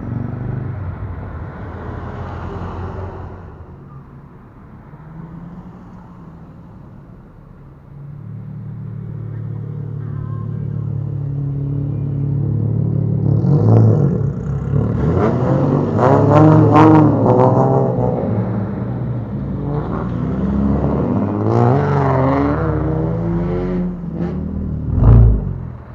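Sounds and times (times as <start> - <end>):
car engine revving: 8.2 - 25.9.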